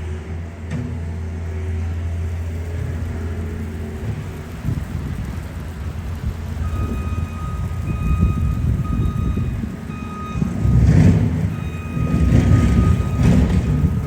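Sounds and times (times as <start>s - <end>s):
engine and traffic rumble: 0.0s - 14.0s
reversing alarm beeping: 6.6s - 14.0s.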